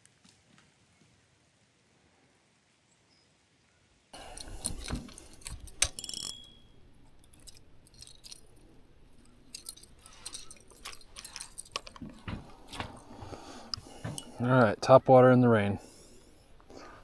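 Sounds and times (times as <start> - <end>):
fishing tackle clicking and clinking: 4.2 - 14.8.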